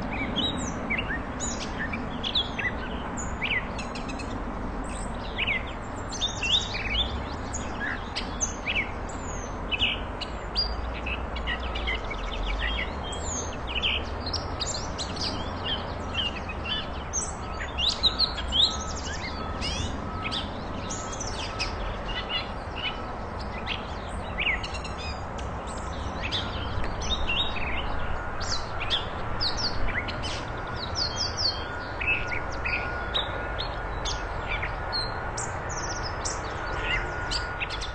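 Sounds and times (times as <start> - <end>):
catbird singing: 0.0 - 37.9.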